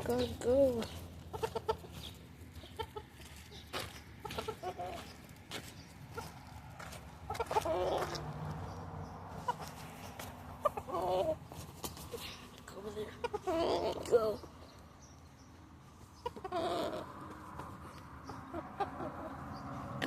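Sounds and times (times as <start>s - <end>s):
rooster clucking: 0.0s - 5.2s, 6.1s - 8.5s, 9.3s - 12.3s, 12.9s - 14.3s, 16.1s - 20.0s.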